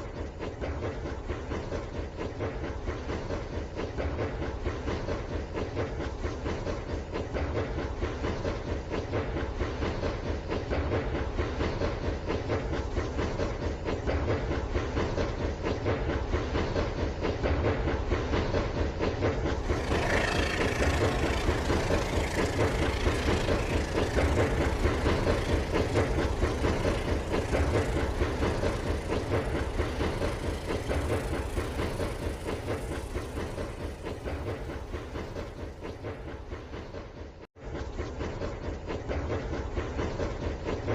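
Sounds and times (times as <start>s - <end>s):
wheels clattering on track: 0.0s - 40.9s
toy train motor whir: 19.6s - 34.0s.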